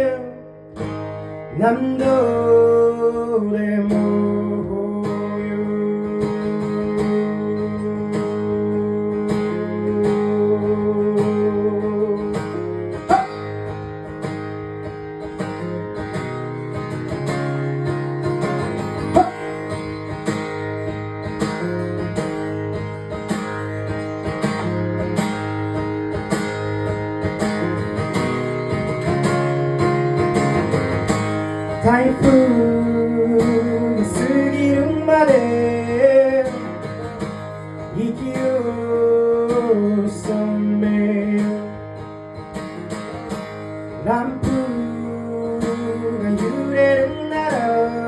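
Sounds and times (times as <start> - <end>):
acoustic guitar playing chords: 0.0 - 48.0.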